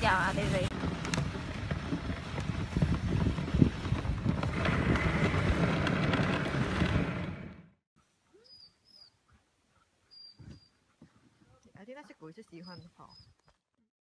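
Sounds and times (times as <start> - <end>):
sled runners scraping snow: 0.0 - 7.6
wooden sled rattling: 0.0 - 7.6
wind rumbling on microphone: 0.0 - 7.7.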